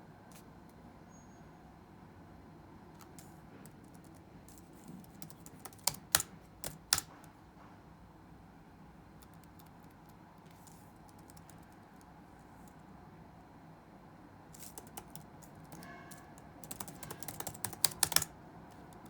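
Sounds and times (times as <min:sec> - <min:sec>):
low room hum: 0:00.0 - 0:19.0
computer keyboard typing: 0:03.0 - 0:07.3, 0:09.2 - 0:12.1, 0:14.6 - 0:19.0.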